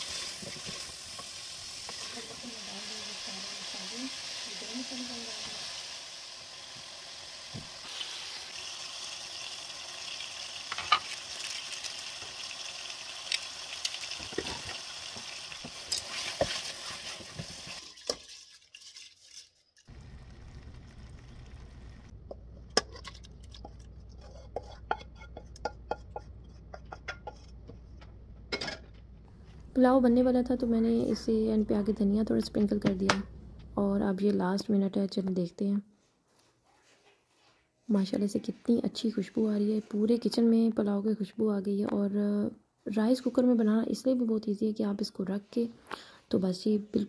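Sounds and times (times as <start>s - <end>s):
chicken sizzling in oil: 0.0s - 19.0s
low steady hum: 19.9s - 34.2s
wooden spoon scraping a pot: 22.6s - 28.0s.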